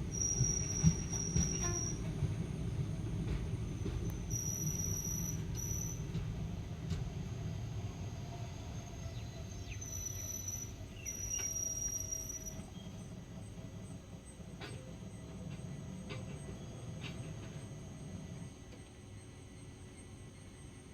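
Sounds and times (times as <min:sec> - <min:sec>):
train rumble slowing: 0:00.0 - 0:20.9
high-pitched brake squeals: 0:00.1 - 0:02.2, 0:04.2 - 0:06.1, 0:09.6 - 0:12.8.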